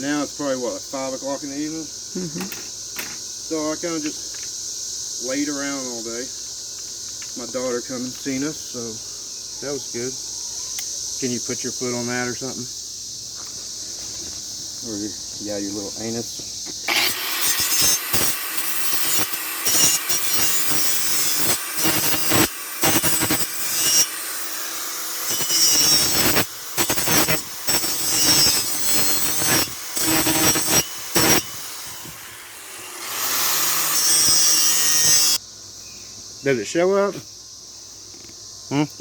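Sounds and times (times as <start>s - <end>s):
wire wheel scrubbing metal: 16.9s - 35.4s.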